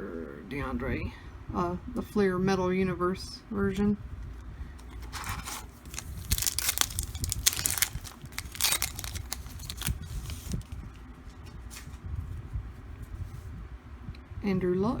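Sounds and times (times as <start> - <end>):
foil wrapper tearing and crinkling: 5.2 - 11.0.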